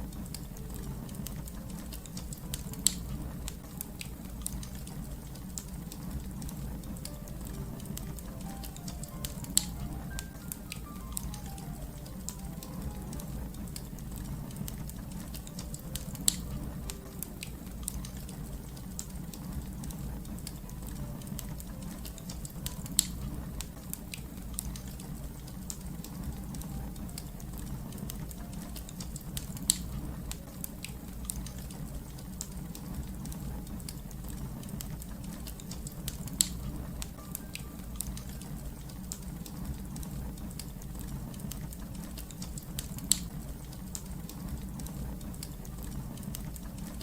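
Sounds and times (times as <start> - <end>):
wood fire crackling: 0.0 - 47.0.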